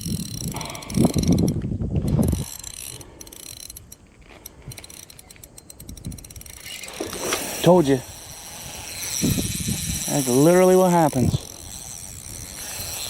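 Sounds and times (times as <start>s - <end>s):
fishing reel clicking: 0.0s - 13.0s.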